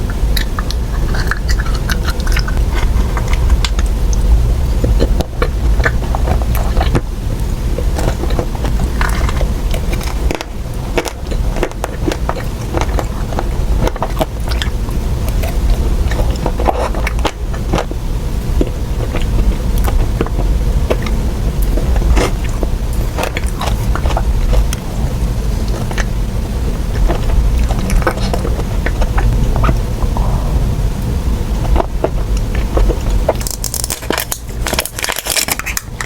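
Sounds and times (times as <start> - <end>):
person biting and chewing: 0.0 - 17.9, 31.6 - 36.0
low rumble: 0.0 - 35.0.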